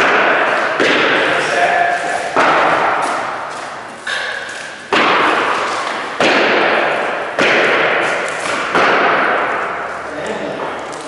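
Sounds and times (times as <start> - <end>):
nail gun firing into plywood: 6.2 - 9.6.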